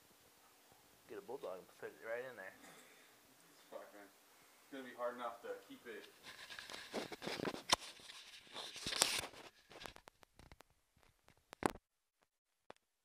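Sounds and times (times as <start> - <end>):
rustling handling noise: 5.8 - 11.5.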